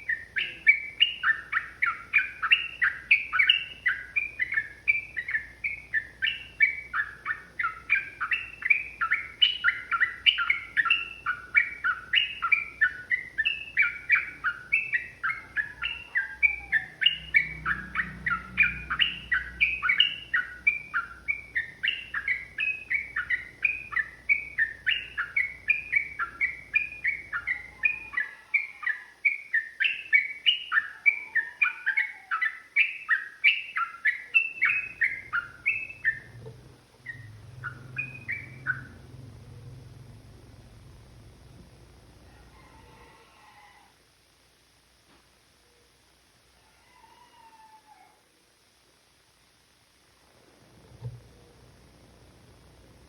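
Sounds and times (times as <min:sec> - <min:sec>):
bird singing bubbly chirps: 0:00.0 - 0:36.4, 0:37.0 - 0:39.8.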